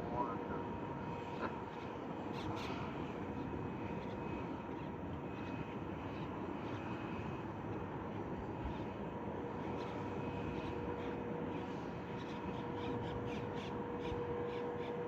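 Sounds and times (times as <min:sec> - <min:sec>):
jet engines idling: 0:00.0 - 0:15.0.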